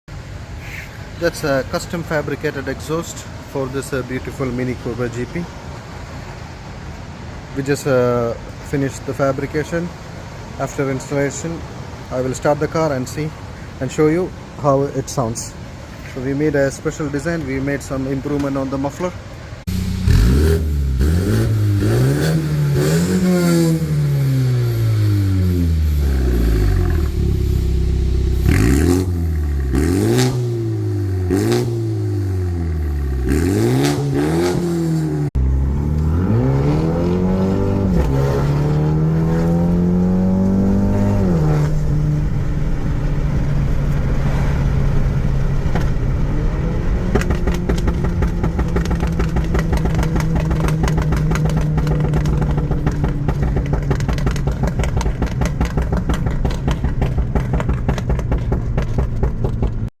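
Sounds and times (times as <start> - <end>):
exhaust cracks: 17.8 - 59.9
car engine revving: 19.6 - 59.9.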